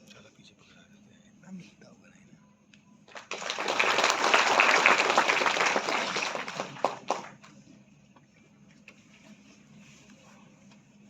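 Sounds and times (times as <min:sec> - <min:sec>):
audience applauding: 0:03.1 - 0:07.5.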